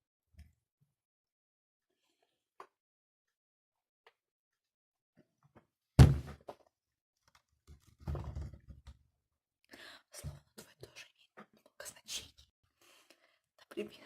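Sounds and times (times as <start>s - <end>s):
loud thump: 6.0s - 6.4s.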